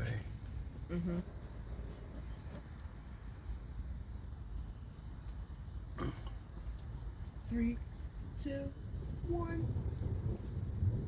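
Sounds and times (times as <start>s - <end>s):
crickets trilling: 0.0s - 11.0s
low rumble: 8.8s - 11.0s.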